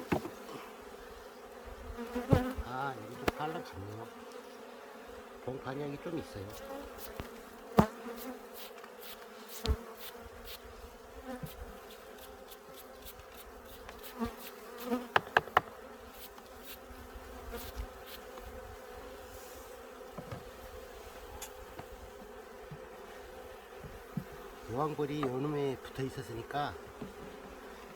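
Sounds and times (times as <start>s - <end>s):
honeybees buzzing: 0.0s - 27.9s
sharp knocks and clicks: 15.1s - 15.7s.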